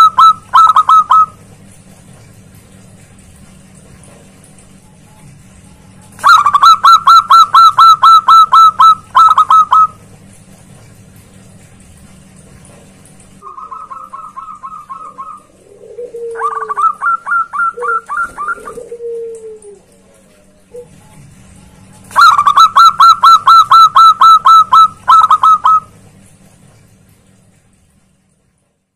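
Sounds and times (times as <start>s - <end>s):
doves cooing: 0.0s - 1.5s, 6.1s - 10.1s, 13.3s - 26.0s.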